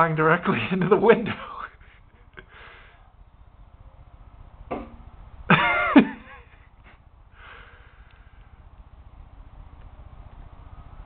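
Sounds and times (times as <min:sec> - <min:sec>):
brief knock: 0:04.7 - 0:05.0.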